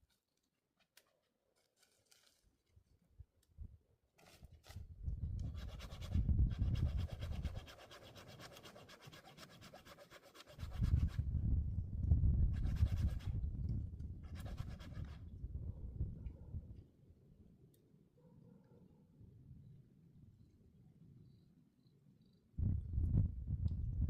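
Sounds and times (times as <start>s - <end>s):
hand saw cutting wood: 5.5s - 11.2s, 12.6s - 13.3s, 14.3s - 15.2s.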